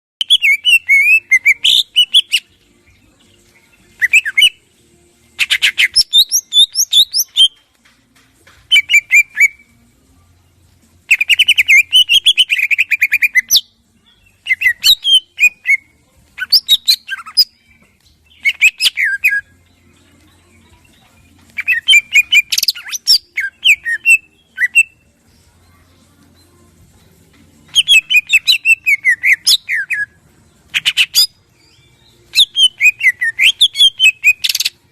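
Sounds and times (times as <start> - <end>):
bird singing harsh notes and whistles: 0.2 - 2.7, 3.5 - 4.7, 5.4 - 7.6, 8.7 - 9.8, 11.1 - 19.7, 21.6 - 25.1, 27.7 - 34.9.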